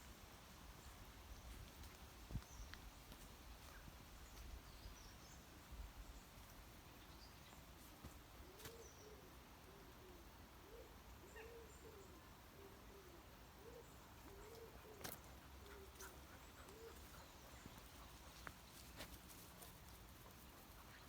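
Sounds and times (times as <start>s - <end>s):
pigeon cooing: 8.6s - 17.5s.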